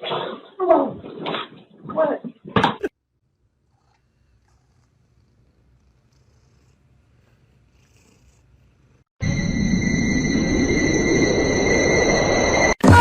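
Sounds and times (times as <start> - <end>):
cat purring: 3.4 - 9.1.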